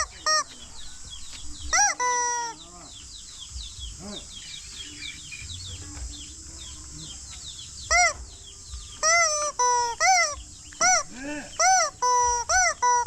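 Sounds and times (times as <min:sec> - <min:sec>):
faint peeping chirps: 0:00.0 - 0:13.0
harsh honking calls: 0:01.7 - 0:03.0, 0:07.9 - 0:08.3, 0:09.0 - 0:13.0.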